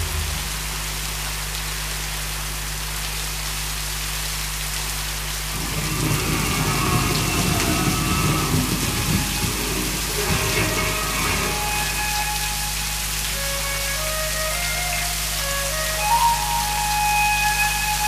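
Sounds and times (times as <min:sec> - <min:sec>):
heavy rain on leaves: 0:00.0 - 0:18.0
low rumble: 0:05.2 - 0:12.5.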